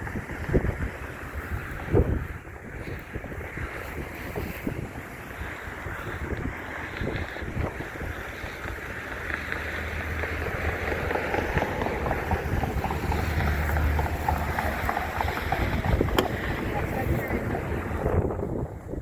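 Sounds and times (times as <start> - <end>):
wind buffeting microphone: 0.0 - 19.0
low steady rumble: 4.7 - 19.0.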